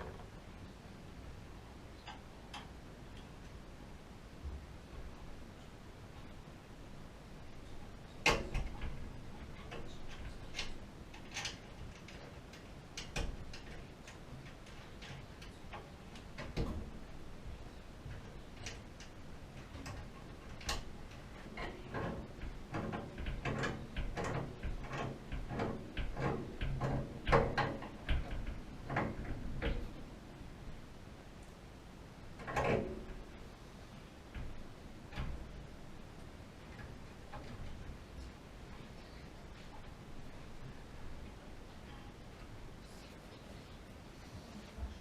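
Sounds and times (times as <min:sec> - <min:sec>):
sharp clicks and light knocks: 0:02.0 - 0:03.6, 0:07.6 - 0:30.1, 0:32.4 - 0:33.4, 0:34.2 - 0:42.6.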